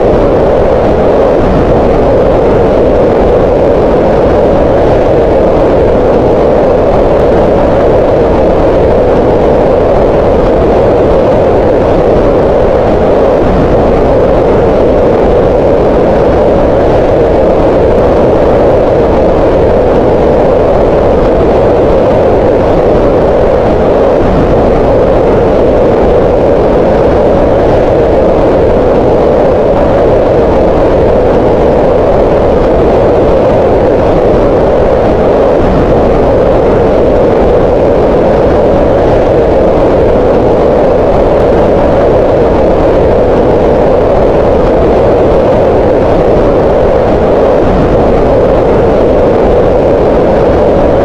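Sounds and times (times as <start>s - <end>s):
steady synthetic noise hiss: 0.0s - 51.0s.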